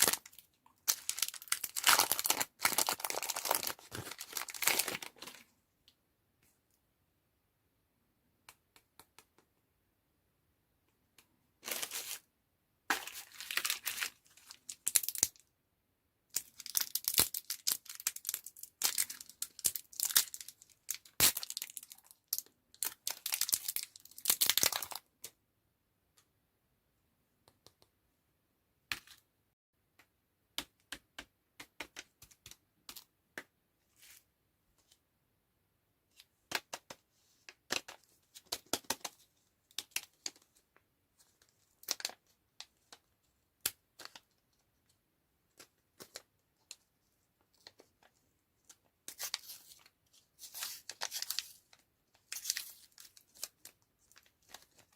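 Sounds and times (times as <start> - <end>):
plastic wrappers crinkling and tearing: 0.0 - 5.4, 12.9 - 15.4, 16.4 - 25.0.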